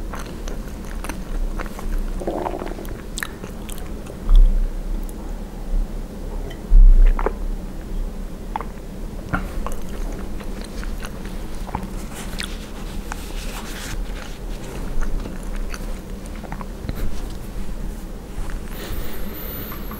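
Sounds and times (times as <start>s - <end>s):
close chewing with wet clicks: 0.0s - 5.2s, 7.0s - 7.9s, 8.5s - 17.8s.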